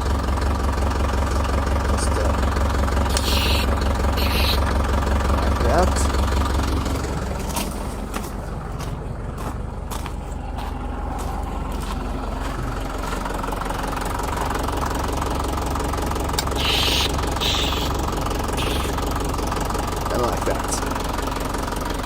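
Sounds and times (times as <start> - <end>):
diesel engine idling: 0.0 - 22.0
aerosol spray hissing: 3.1 - 4.6, 16.5 - 18.0, 18.6 - 19.0.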